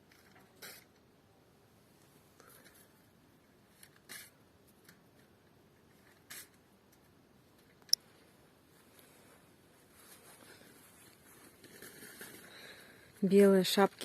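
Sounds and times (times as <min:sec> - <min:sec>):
soft rustles: 0:03.7 - 0:14.0.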